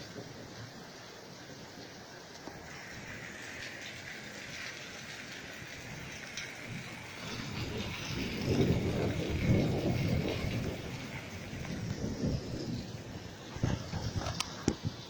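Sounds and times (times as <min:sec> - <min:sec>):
steady rain falling: 0:00.0 - 0:15.0
low roll of thunder: 0:04.3 - 0:15.0.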